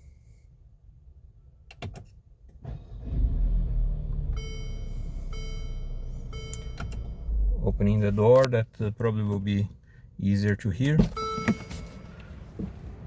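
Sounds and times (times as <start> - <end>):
car engine idling: 2.7 - 8.5
warning chime: 4.4 - 7.5.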